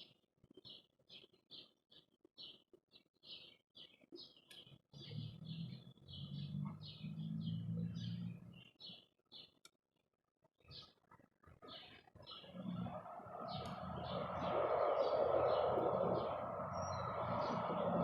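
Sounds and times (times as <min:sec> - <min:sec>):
small birds chirping: 0:00.0 - 0:09.8, 0:10.5 - 0:18.0
low hum: 0:12.6 - 0:18.0.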